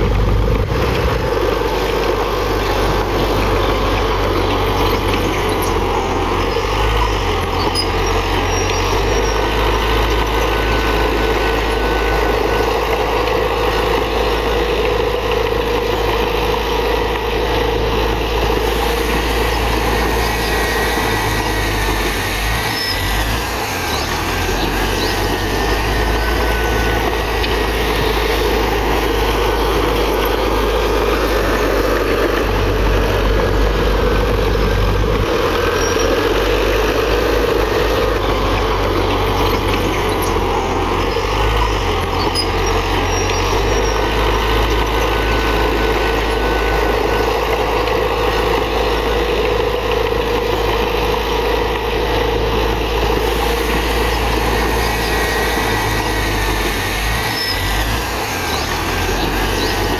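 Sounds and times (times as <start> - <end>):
heavy diesel engine under load: 0.0 - 59.9.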